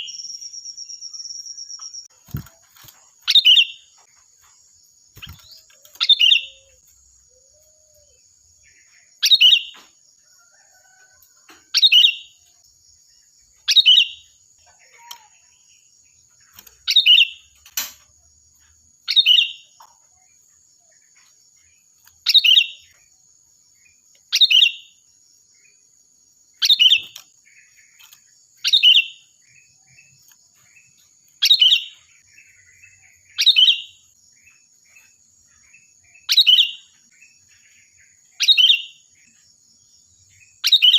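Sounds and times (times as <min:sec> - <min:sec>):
bird calling shrill: 0:00.0 - 0:02.1, 0:05.2 - 0:08.2, 0:24.3 - 0:25.0, 0:28.6 - 0:29.3, 0:33.4 - 0:34.0, 0:40.6 - 0:40.9.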